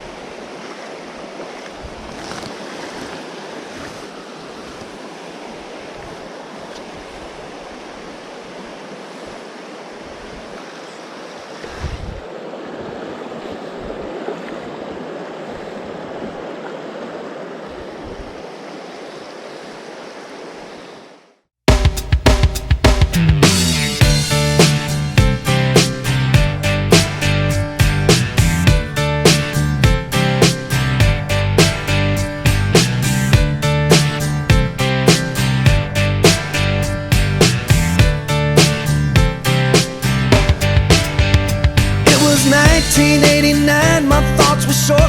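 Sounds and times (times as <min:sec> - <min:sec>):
creek water rushing: 0:00.0 - 0:21.4, 0:23.0 - 0:45.0
wind buffeting microphone: 0:11.6 - 0:18.4.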